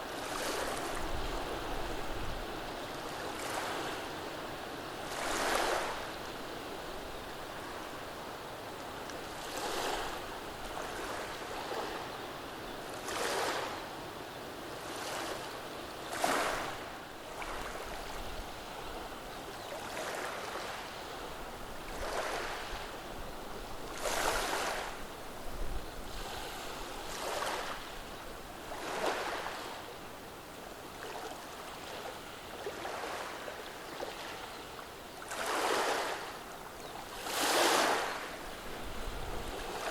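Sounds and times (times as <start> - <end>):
waves washing over cobble stones: 37.1 - 39.9.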